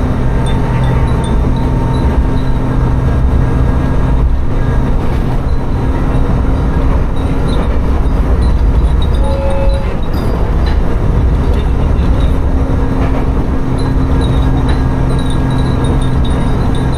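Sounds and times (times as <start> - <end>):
diesel railcar engine droning: 0.0 - 16.9
rolling train wheels: 0.0 - 16.9
wind chimes tinkling: 0.4 - 2.7, 13.8 - 16.9.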